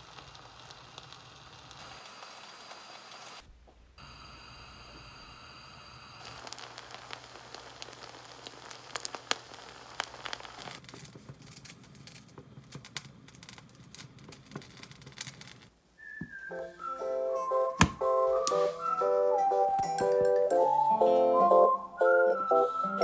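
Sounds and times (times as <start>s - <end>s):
small crackles and clicks: 0.0s - 3.5s, 6.2s - 15.7s.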